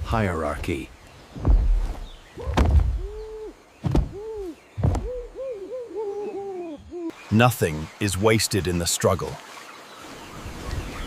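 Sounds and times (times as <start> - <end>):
heavy low thumps: 1.4 - 3.2, 3.8 - 5.4.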